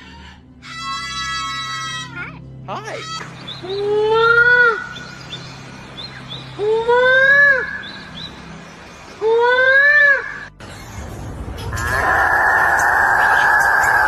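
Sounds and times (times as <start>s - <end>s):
bird long drawn-out calls: 11.7s - 14.0s.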